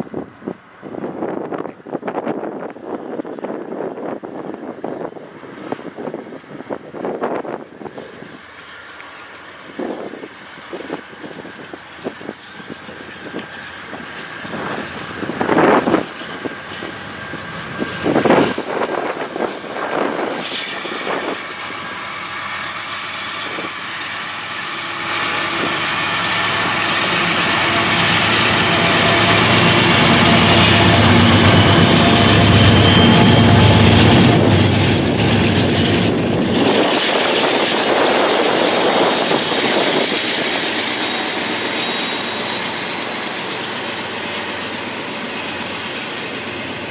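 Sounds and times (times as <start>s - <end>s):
diesel train passing: 0.0s - 46.9s.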